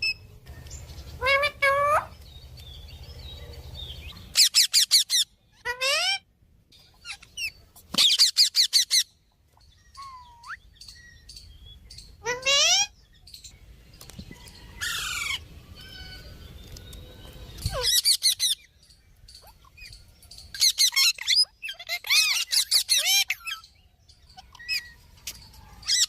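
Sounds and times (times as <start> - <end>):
parrot squawking: 1.2 - 2.2, 4.3 - 6.3, 7.0 - 9.1, 12.2 - 13.0, 17.6 - 18.6, 20.6 - 23.7.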